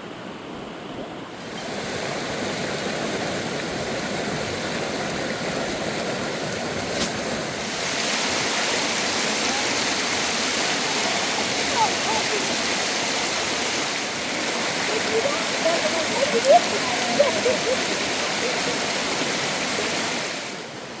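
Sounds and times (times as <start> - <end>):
water rushing: 1.1 - 21.0.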